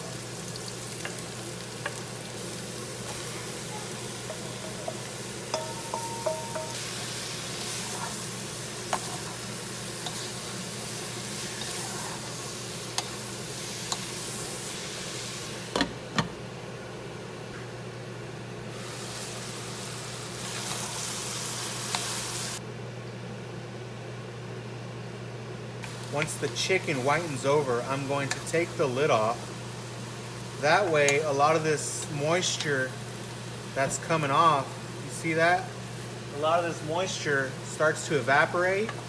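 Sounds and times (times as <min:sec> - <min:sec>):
food sizzling in hot oil: 0:00.0 - 0:15.8, 0:18.7 - 0:22.6, 0:25.8 - 0:39.0
glass lid knocking on pan: 0:05.6 - 0:06.8.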